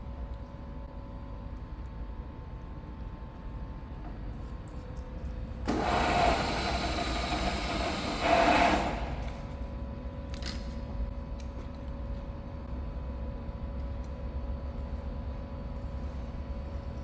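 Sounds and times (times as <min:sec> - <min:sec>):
milling machine humming: 0:05.4 - 0:09.9.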